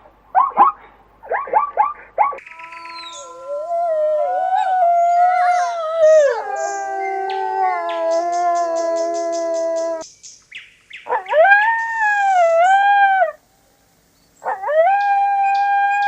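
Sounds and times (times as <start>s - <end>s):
dogs howling in chorus: 2.4s - 10.0s, 11.1s - 13.4s, 14.4s - 16.0s.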